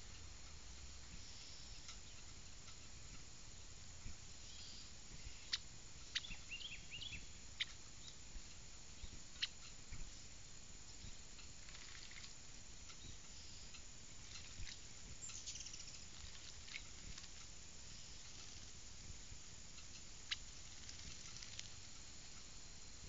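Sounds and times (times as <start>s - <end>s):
bird chirping: 1.1s - 2.9s, 4.4s - 8.2s, 8.9s - 18.8s, 19.8s - 21.8s.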